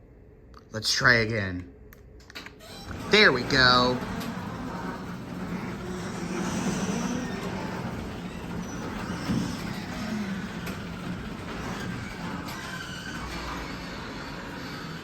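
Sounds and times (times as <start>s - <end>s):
garage door opener motor humming: 2.3s - 15.0s
garage door travelling on track: 2.4s - 15.0s.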